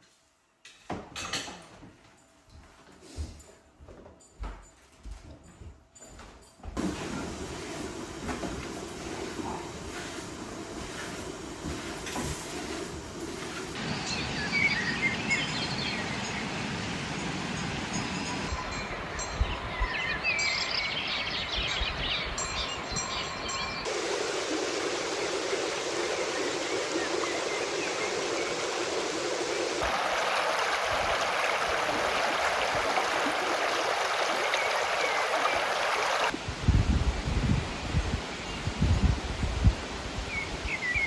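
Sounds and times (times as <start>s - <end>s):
birds chirping: 13.9s - 16.6s, 18.2s - 36.3s
flowing stream water: 23.8s - 36.3s.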